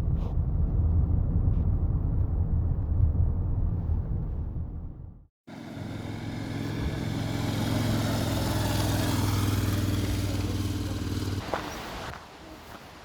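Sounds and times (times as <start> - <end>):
vehicle engine running: 5.5 - 11.4.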